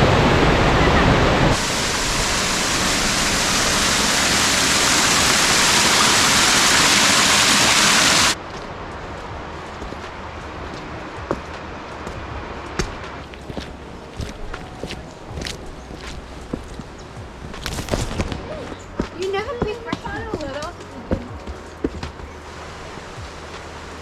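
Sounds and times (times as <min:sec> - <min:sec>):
waterfall rushing: 0:00.0 - 0:08.4, 0:22.5 - 0:24.0
steady rushing background: 0:08.2 - 0:24.0
footsteps on walking track: 0:08.5 - 0:22.4.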